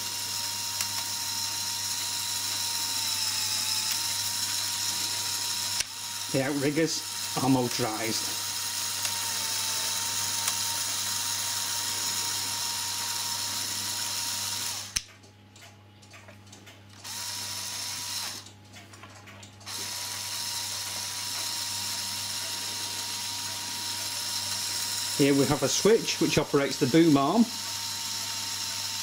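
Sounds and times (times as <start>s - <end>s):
toy electric motor whining: 0.0s - 15.1s, 17.0s - 18.5s, 19.7s - 29.0s
motor stopping click: 0.2s - 6.2s, 7.1s - 15.1s.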